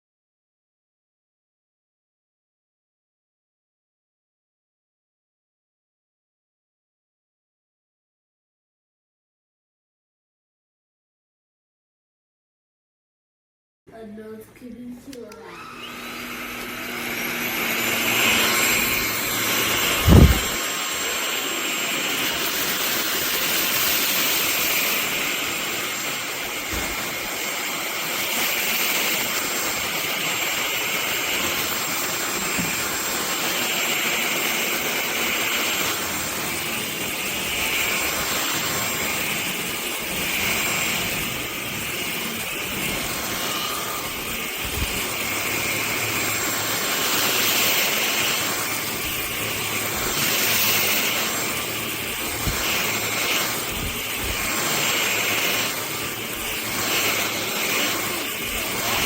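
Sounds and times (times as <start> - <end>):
stick vacuum whining: 15.1 - 59.0
sharp thump: 20.0 - 20.6.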